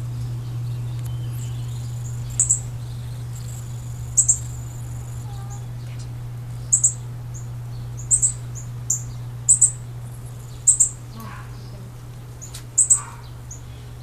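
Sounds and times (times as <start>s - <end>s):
small bird chirping: 0.0s - 11.8s, 12.4s - 13.9s
steady low hum: 0.0s - 14.0s.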